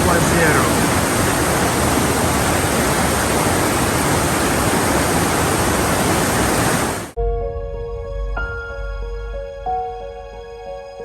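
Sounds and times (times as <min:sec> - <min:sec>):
waterfall roaring: 0:00.0 - 0:07.2.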